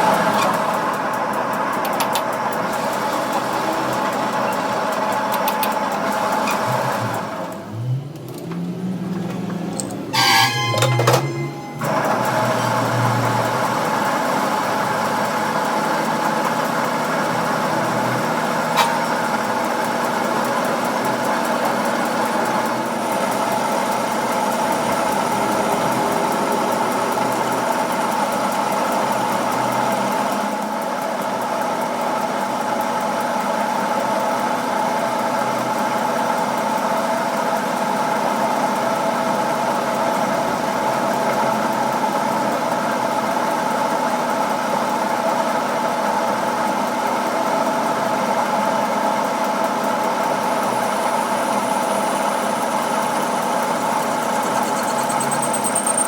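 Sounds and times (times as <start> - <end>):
motor droning: 3.0 - 29.5.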